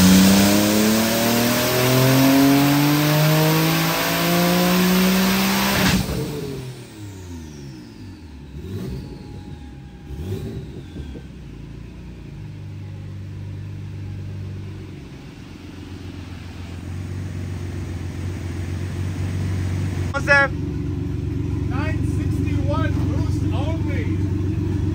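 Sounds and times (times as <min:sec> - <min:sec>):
engine rev blips: 0:00.0 - 0:15.4
car engine revs falling: 0:00.0 - 0:24.9
car engine idling: 0:06.2 - 0:24.9.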